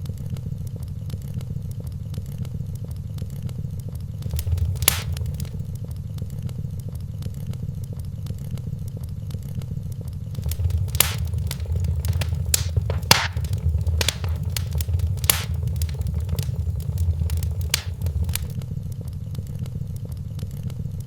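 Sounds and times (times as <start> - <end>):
fire popping: 4.2 - 5.6, 10.4 - 18.6
wood fire crackling: 4.2 - 5.6, 10.4 - 18.6
low rumble: 4.3 - 5.6, 10.4 - 18.6.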